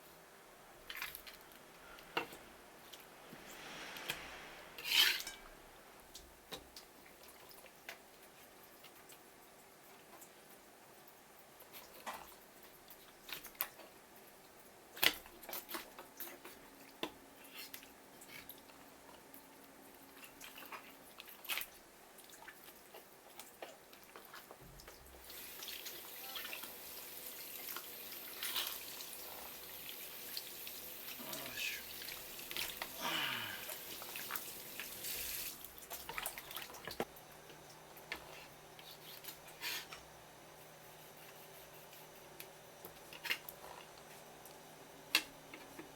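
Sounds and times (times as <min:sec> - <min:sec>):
knocks of handling fish and utensils: 0:00.8 - 0:09.2.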